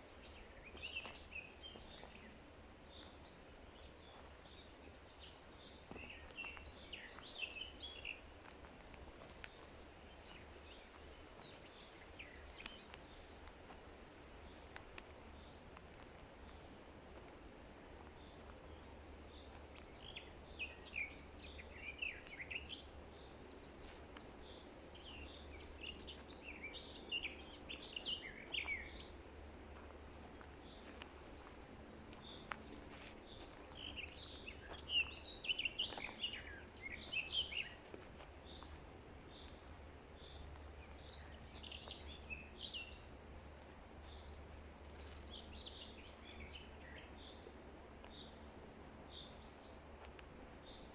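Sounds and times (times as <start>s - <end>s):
faint steady background hum: 0.0s - 50.9s
songbirds singing and chirping: 0.0s - 50.9s.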